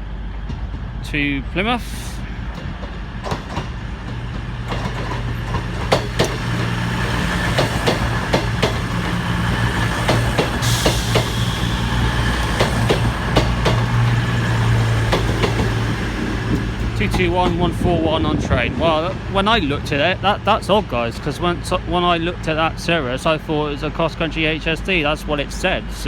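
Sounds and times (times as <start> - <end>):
wheels clicking over rail joints: 2.4 - 17.9
air hissing: 9.6 - 16.8.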